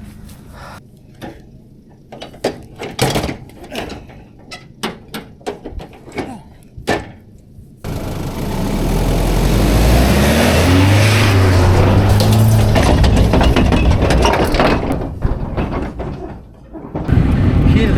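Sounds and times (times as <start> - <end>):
diesel engine running: 7.9 - 14.6
sharp knocks and clanks: 7.9 - 17.1.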